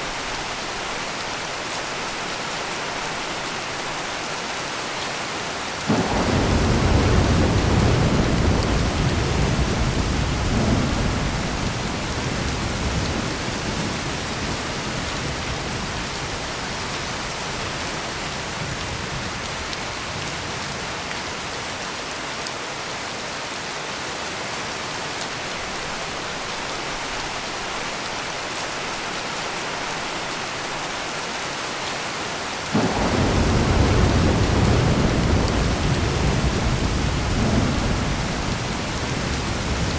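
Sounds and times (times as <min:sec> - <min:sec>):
heavy rain hissing: 0:05.8 - 0:18.7, 0:31.9 - 0:39.9
thunder rumbling: 0:05.9 - 0:16.6, 0:32.8 - 0:39.9.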